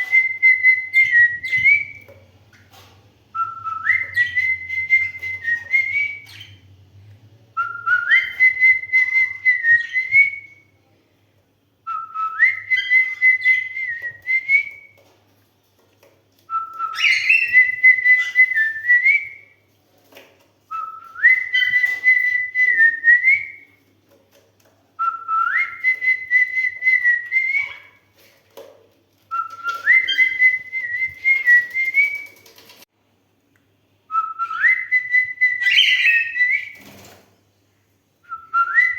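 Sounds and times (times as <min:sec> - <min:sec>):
cockatiel whistling tune: 0:00.0 - 0:02.1, 0:03.4 - 0:06.6, 0:07.6 - 0:10.6, 0:11.9 - 0:14.9, 0:16.5 - 0:19.4, 0:20.7 - 0:23.6, 0:25.0 - 0:27.9, 0:29.3 - 0:32.5, 0:34.1 - 0:36.8.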